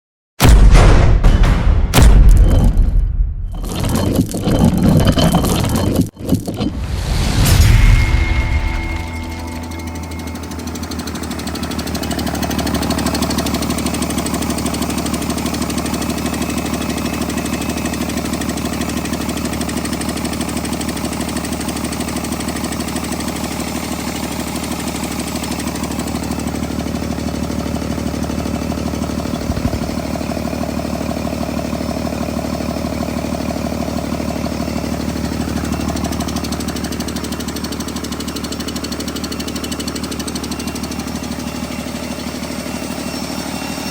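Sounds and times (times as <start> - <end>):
diesel engine idling: 9.2 - 43.6.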